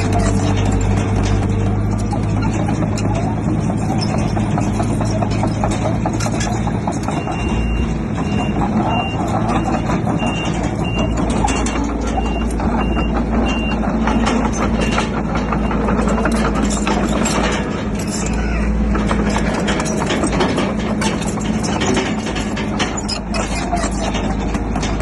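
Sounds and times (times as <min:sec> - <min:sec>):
heavy diesel machinery running: 0:00.0 - 0:25.0
irregular clattering: 0:00.0 - 0:25.0
reversing alarm beeping: 0:07.1 - 0:16.0.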